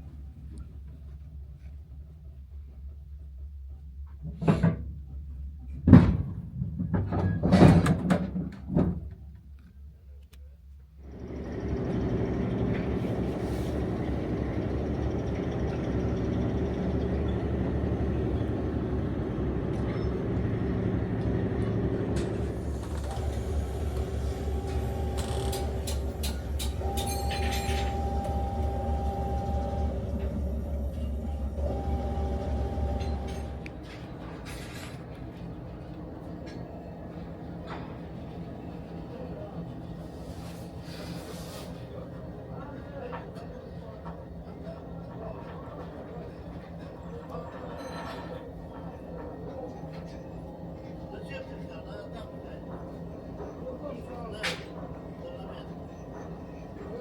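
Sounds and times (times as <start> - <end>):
knocks and clunks in train carriage: 4.0 - 9.8, 11.3 - 57.0
thin steady whine: 22.0 - 34.0.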